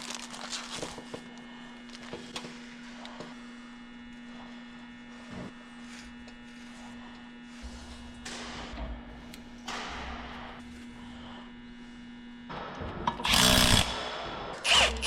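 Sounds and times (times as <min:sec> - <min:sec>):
steady low hum: 0:00.0 - 0:15.0
power tool burst: 0:13.2 - 0:15.0.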